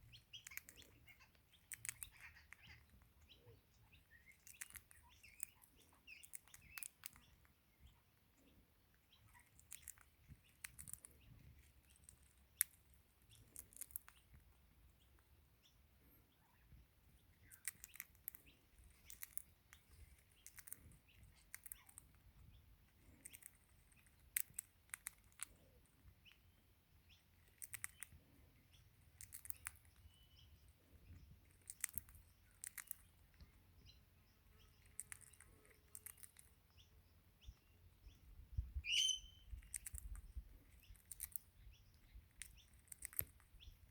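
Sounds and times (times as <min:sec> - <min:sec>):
faint bird chirps: 0:00.0 - 0:43.9
parrot cracking seeds: 0:00.3 - 0:03.2, 0:04.1 - 0:07.5, 0:09.3 - 0:14.4, 0:17.4 - 0:22.2, 0:23.0 - 0:25.8, 0:27.2 - 0:28.2, 0:28.9 - 0:30.0, 0:31.4 - 0:33.4, 0:34.8 - 0:36.5, 0:39.6 - 0:40.2, 0:40.8 - 0:41.5, 0:42.3 - 0:43.9.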